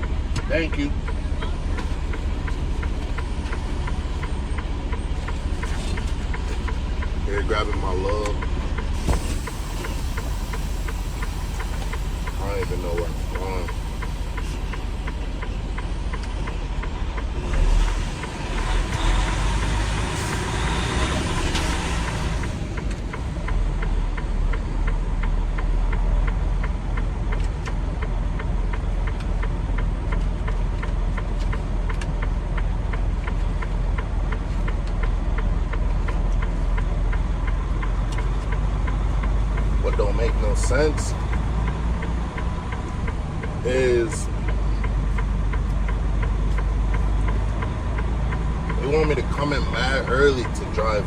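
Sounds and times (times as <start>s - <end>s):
truck engine and road rumble: 0.0s - 51.0s.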